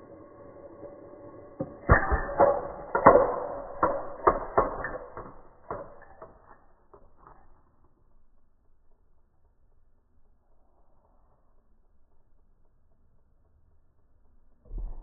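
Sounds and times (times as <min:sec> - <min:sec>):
sharp knocks and clatters: 0:01.6 - 0:08.1.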